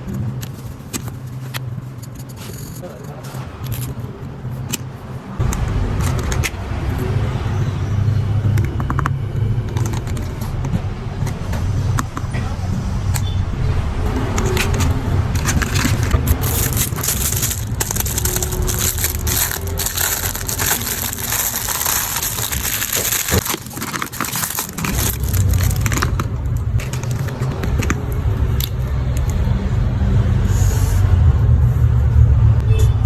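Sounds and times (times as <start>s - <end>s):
low rumble: 5.4s - 32.8s
objects handled crackling and rustling: 14.2s - 29.5s.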